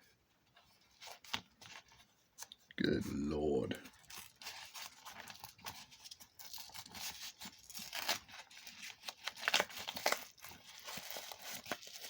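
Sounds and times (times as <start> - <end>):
packaging tearing and crinkling: 4.0 - 12.0.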